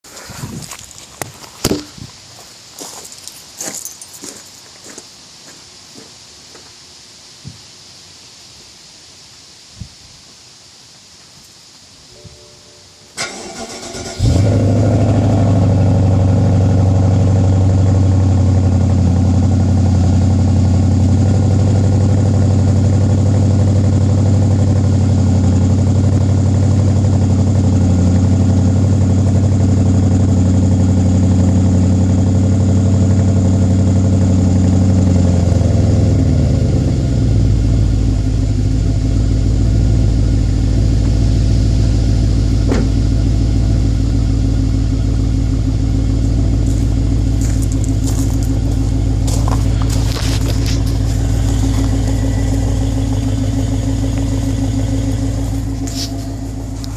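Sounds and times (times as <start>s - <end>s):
car engine idling: 13.2s - 56.9s.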